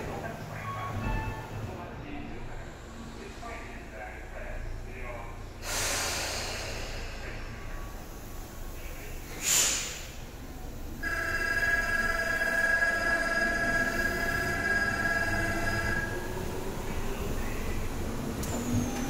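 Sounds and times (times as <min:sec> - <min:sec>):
air hiss: 0:05.6 - 0:07.4, 0:09.3 - 0:10.2
electronic ringing tones: 0:11.0 - 0:16.3.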